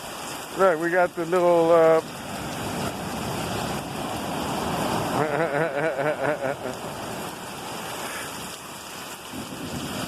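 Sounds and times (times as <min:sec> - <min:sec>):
surf waves breaking on beach: 0:00.0 - 0:10.0.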